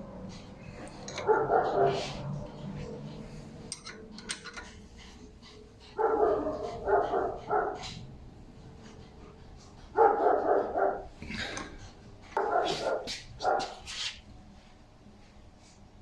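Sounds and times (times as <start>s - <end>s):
dog barking: 1.1s - 2.6s, 6.0s - 8.0s, 9.9s - 11.1s, 12.4s - 13.8s.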